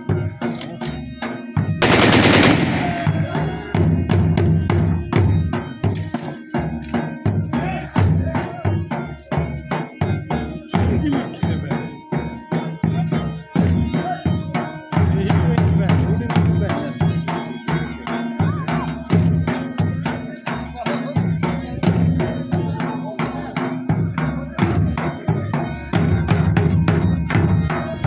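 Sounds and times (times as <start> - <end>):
rapid drum beat: 1.8 - 4.8.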